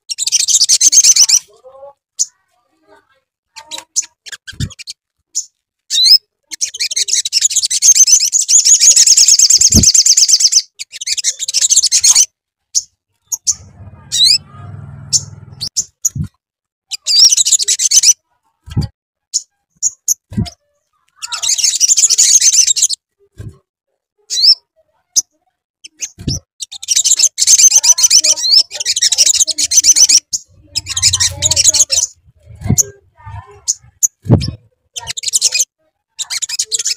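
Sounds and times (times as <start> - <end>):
bird chittering trills: 12.8 - 16.2, 25.8 - 36.9
short low thumps: 30.5 - 33.5.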